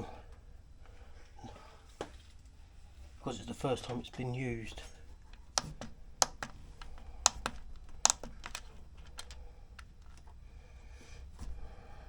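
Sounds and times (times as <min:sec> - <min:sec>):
control panel buttons clicking: 0:05.4 - 0:10.2.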